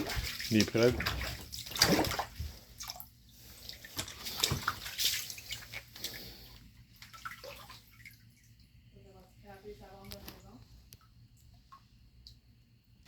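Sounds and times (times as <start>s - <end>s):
floodwater splashing and sloshing: 0.0s - 8.8s.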